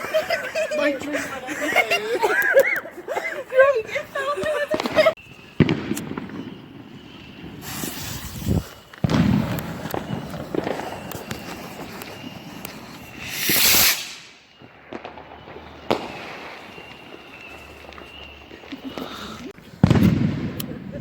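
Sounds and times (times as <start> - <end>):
firework crackling: 0.0 - 21.0
firework bangs: 3.7 - 21.0
firework hissing whoosh: 5.4 - 18.2.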